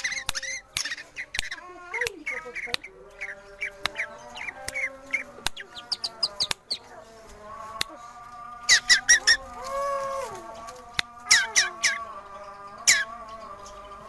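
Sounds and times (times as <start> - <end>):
high rapid bird notes: 0.0 - 6.9
bird singing: 0.0 - 14.0.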